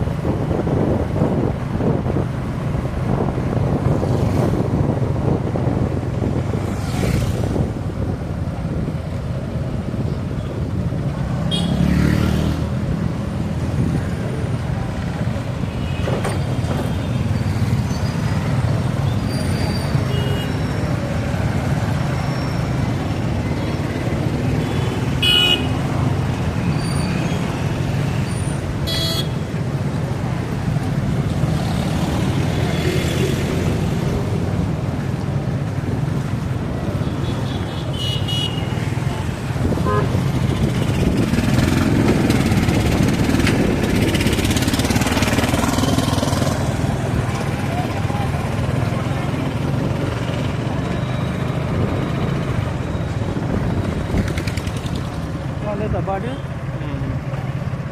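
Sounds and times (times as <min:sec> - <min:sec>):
low rumble of traffic: 0:00.0 - 0:57.9
vehicles passing by: 0:00.0 - 0:57.9
horn toots: 0:39.7 - 0:40.3.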